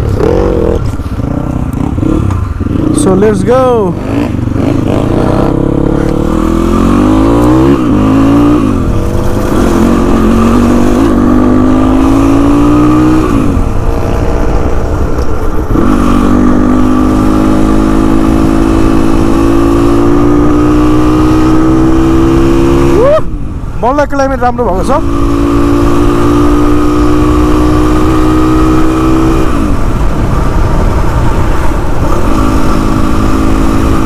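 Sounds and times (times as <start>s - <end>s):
wind rushing past: 0.0s - 23.8s
motorcycle engine accelerating: 0.0s - 34.0s.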